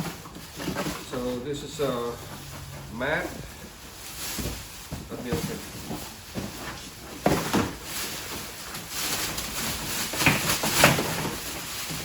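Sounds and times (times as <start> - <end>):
packaging rustling: 0.0 - 12.0
packaging ripping: 7.2 - 12.0.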